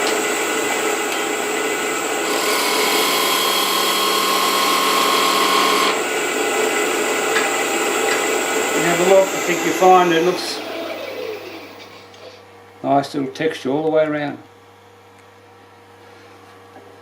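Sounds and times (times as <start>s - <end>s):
lathe cutter chattering buzz: 0.0s - 12.2s
steady high whine: 0.0s - 12.2s.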